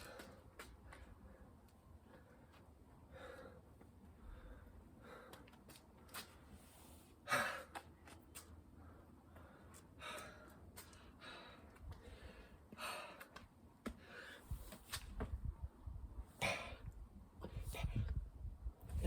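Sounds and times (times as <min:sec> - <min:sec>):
person breathing hard: 0:00.0 - 0:05.5, 0:08.8 - 0:14.6.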